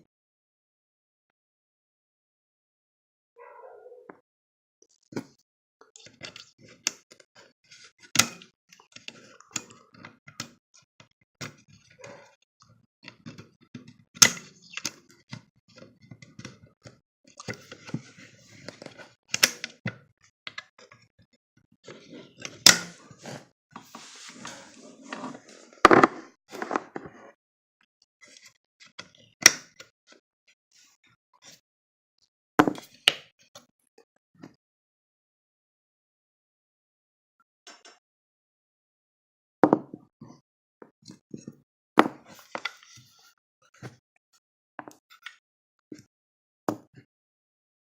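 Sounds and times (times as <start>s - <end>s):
brief scraping: 23.3s - 27.4s.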